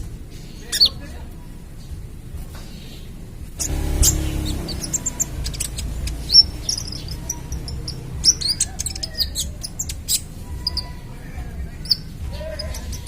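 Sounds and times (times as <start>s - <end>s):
bird chirping: 0.3s - 1.2s, 1.8s - 13.0s.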